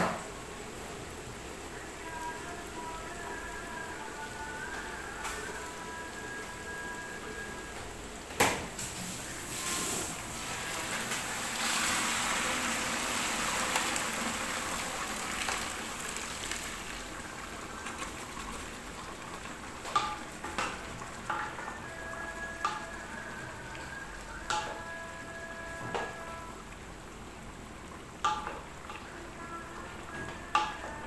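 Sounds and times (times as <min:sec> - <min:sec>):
chicken sizzling in oil: 0:00.0 - 0:31.0.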